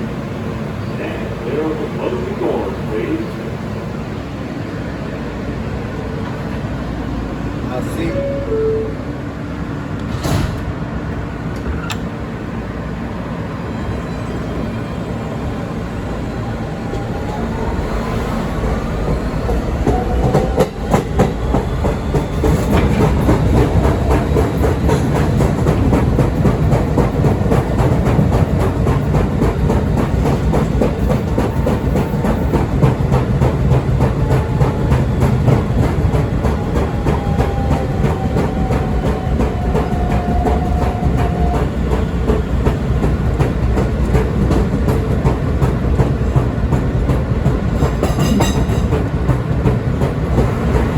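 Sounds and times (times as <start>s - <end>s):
subway train wheels clattering: 0.0s - 50.9s.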